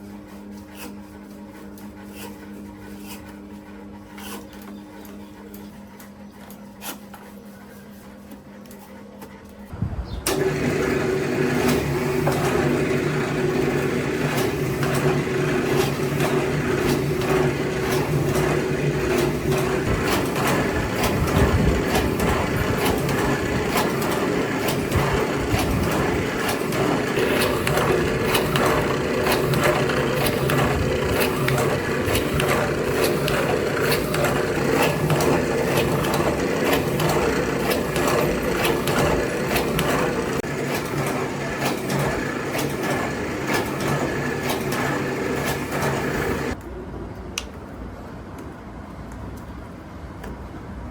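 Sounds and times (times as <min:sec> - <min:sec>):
workshop machine motor hum: 0:00.0 - 0:46.6.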